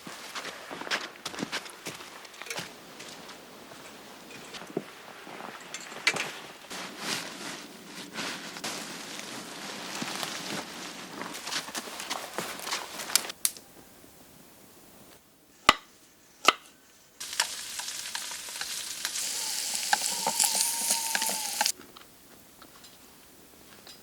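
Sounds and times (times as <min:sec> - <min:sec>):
food sizzling over a campfire: 0:17.2 - 0:21.8.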